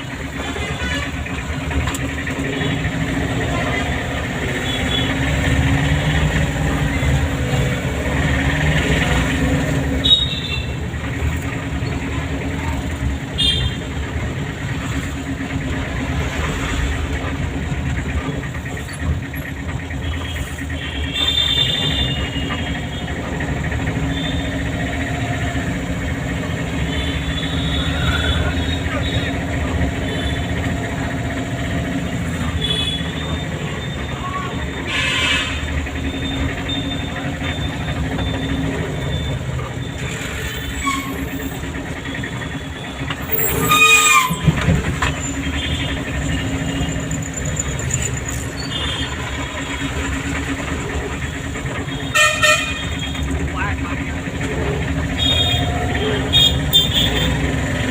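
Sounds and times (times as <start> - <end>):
car engine humming: 0.0 - 34.9, 35.5 - 57.9
road noise: 0.0 - 57.9
car horn honk: 32.5 - 33.2, 34.8 - 35.6, 51.9 - 53.2.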